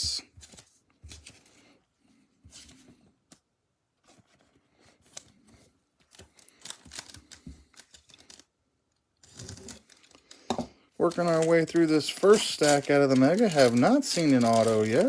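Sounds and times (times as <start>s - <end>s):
card wrappers rustling and clicking: 0.4s - 1.8s, 4.0s - 8.6s, 9.2s - 15.0s.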